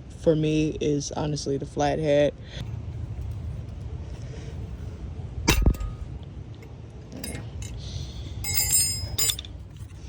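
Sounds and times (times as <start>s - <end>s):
sharp metal clink: 5.5s - 6.1s, 7.2s - 7.8s, 8.4s - 9.6s
jingling metallic ring: 7.1s - 9.8s
screwdriver prying metal part: 8.5s - 9.5s.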